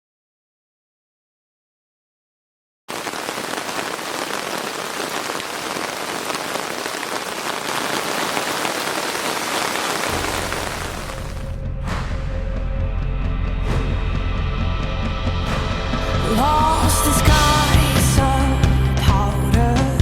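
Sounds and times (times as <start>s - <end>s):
heavy rain falling: 2.9s - 11.6s.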